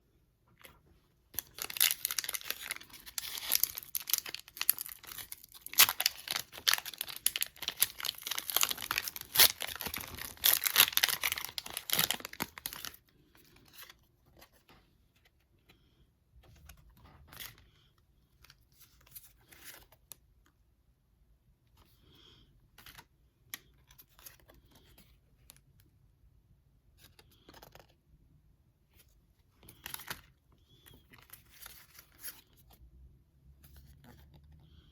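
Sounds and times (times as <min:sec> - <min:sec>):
foil wrapper crinkling and tearing: 0:01.4 - 0:13.0.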